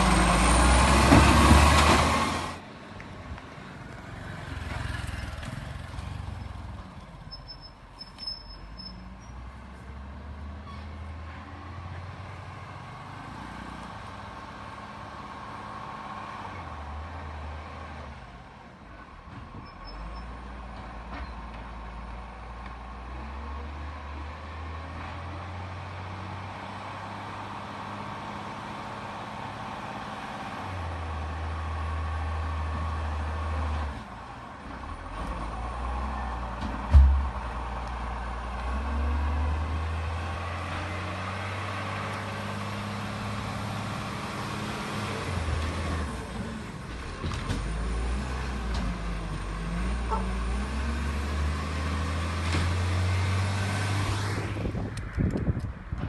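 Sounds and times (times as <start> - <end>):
sharp thump: 36.6 - 37.4.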